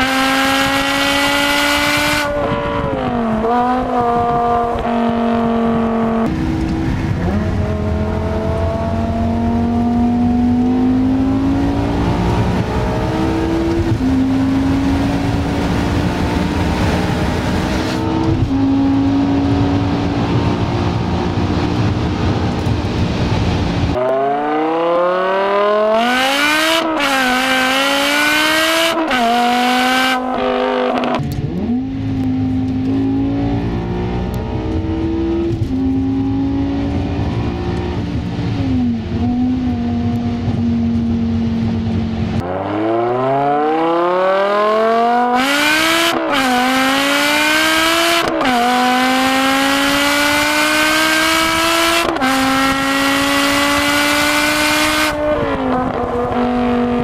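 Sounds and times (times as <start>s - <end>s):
car engine revving through gears: 0.0s - 57.0s.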